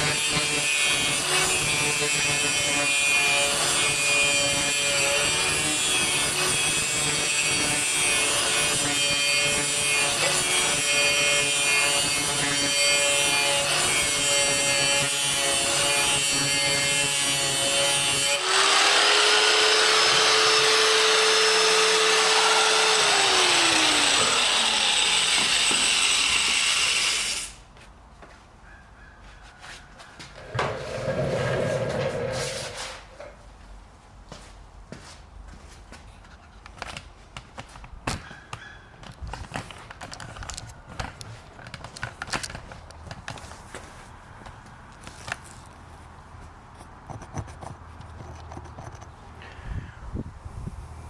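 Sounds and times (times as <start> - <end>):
power grinder grinding metal: 0.0 - 27.6, 30.4 - 33.0.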